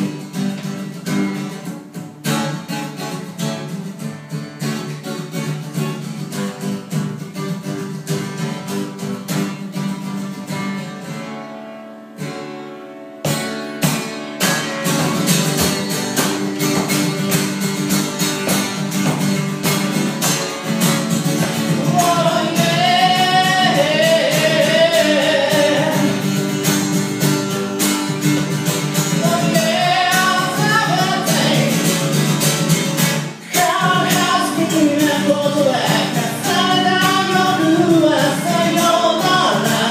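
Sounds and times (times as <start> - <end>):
acoustic guitar strumming: 0.0 - 39.9
person singing: 21.4 - 26.5, 29.0 - 32.4, 33.2 - 39.9.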